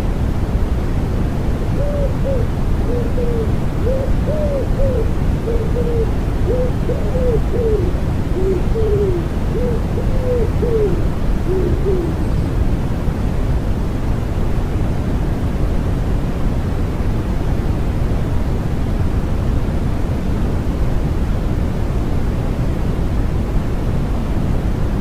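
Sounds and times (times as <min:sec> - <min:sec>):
steady white noise: 0:00.0 - 0:25.0
pigeon cooing: 0:01.8 - 0:12.4.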